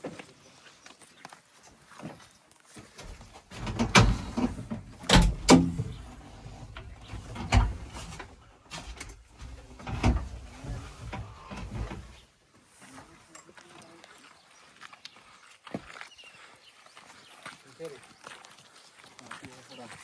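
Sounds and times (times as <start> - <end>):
loud knocks and clanks: 3.6 - 6.2.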